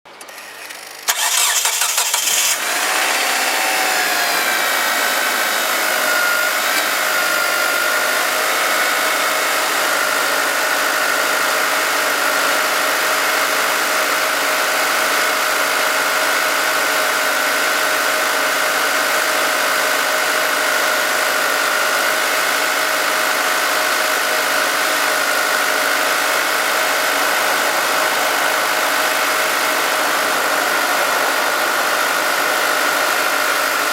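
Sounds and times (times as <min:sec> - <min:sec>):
starter motor cranking: 0:00.1 - 0:07.3
car engine idling: 0:01.1 - 0:11.8, 0:21.2 - 0:33.9.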